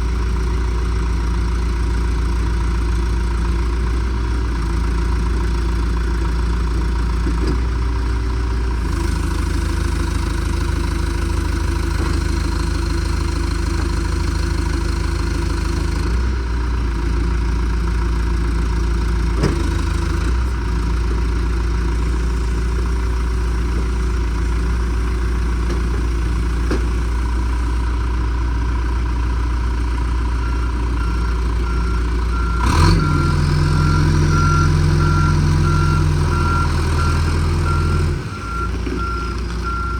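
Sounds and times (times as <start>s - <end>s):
diesel engine running: 0.0s - 39.9s
clunk: 7.2s - 7.7s, 11.9s - 12.5s, 19.3s - 19.8s, 25.1s - 27.4s, 38.6s - 39.9s
reverse alarm beeping: 30.5s - 39.9s.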